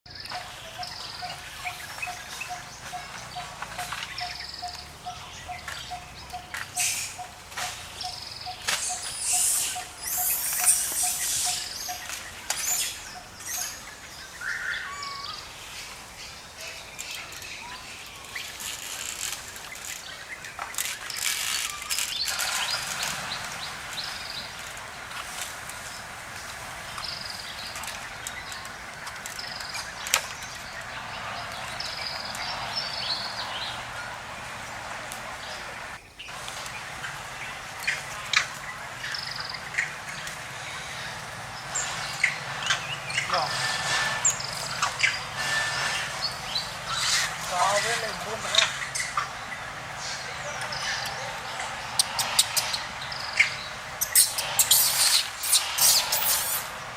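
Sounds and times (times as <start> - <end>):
high chirping calls: 0.1 - 24.6, 37.6 - 56.9.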